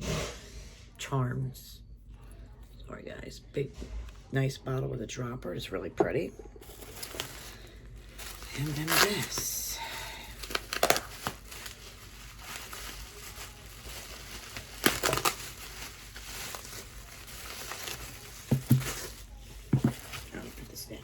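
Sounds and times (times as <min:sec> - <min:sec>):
packaging crinkling: 0:06.6 - 0:21.0.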